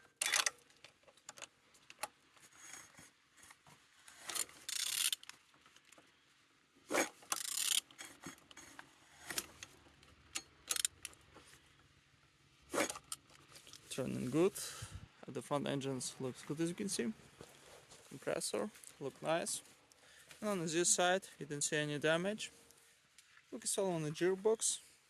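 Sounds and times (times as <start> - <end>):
engine clicking when turned by hand: 7.2 - 11.3.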